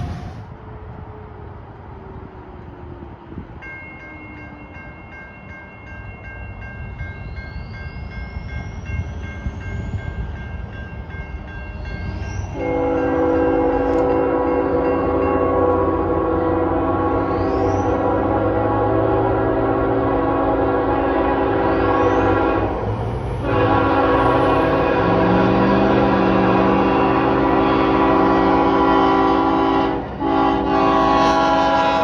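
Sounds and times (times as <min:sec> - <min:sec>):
train rumbling past: 0:00.0 - 0:32.0
pulsing crossing bell ringing: 0:03.6 - 0:13.7
locomotive air horn: 0:12.6 - 0:22.8, 0:23.4 - 0:32.0.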